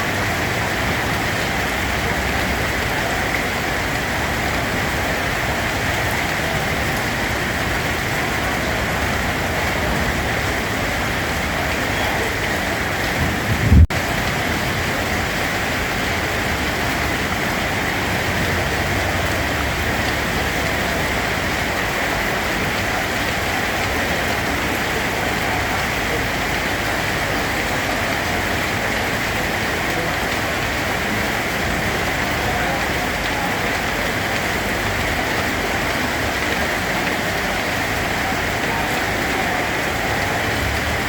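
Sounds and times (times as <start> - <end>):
rain falling on a surface: 0.0 - 41.0
short low rumble: 13.2 - 14.0.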